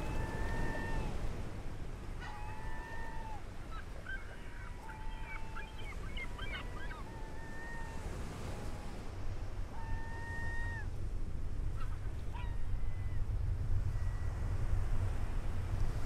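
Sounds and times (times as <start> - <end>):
long drawn-out bird calls: 0.0 - 1.4, 2.2 - 9.0, 9.7 - 10.9.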